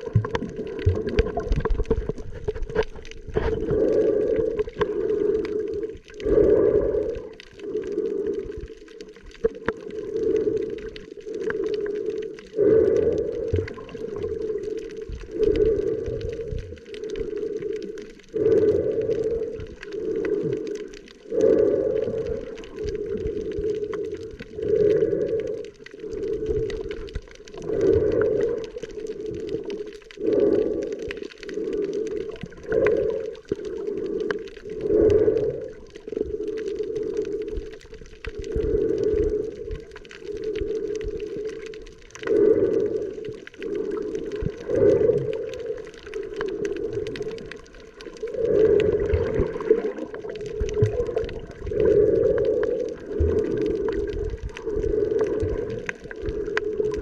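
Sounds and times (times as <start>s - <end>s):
muffled underwater water surging: 0.0s - 57.0s.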